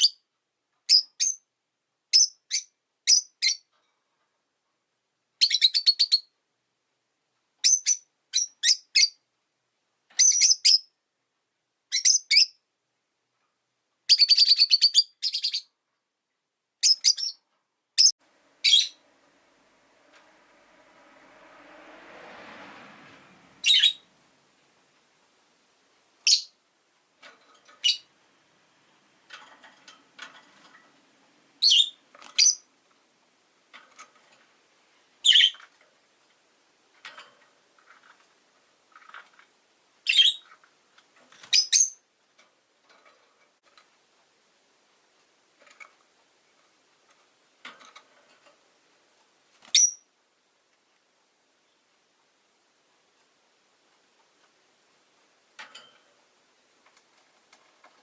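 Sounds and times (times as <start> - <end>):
lovebirds chirping: 2.1 - 3.7, 16.8 - 19.1, 23.6 - 24.1, 26.2 - 26.6, 27.8 - 28.1, 31.6 - 32.7, 35.2 - 35.6, 40.0 - 40.5, 41.3 - 42.1, 49.6 - 50.1
soft bird calls: 16.8 - 19.1, 23.6 - 24.1, 35.2 - 35.7.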